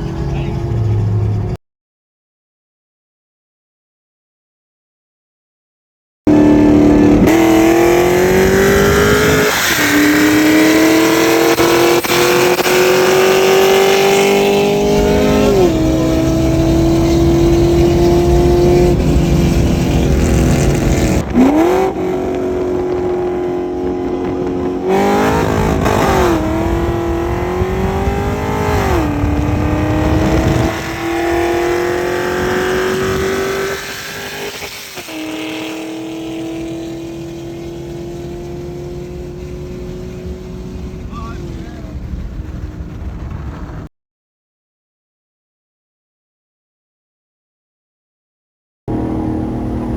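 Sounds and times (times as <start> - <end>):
sports car engine revving: 6.3 - 43.8, 48.9 - 49.9.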